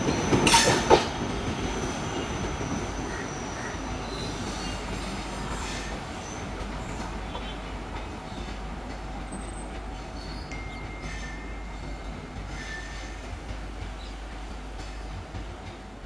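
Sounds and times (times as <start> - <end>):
train wheels rumbling on rail: 0.0 - 16.0
high wheel squeals: 9.4 - 13.3.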